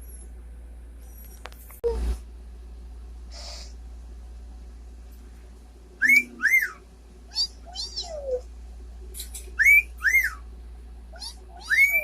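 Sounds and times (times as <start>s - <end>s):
parrot chirps: 6.0s - 8.4s, 9.2s - 10.4s, 11.1s - 12.0s
parrot whistling: 6.0s - 8.4s, 9.2s - 10.4s, 11.2s - 12.0s.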